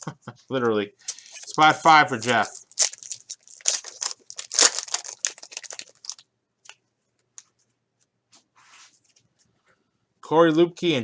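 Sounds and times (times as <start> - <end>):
card pack wrapper tearing: 1.0 - 6.8
cards ticking: 1.1 - 6.2.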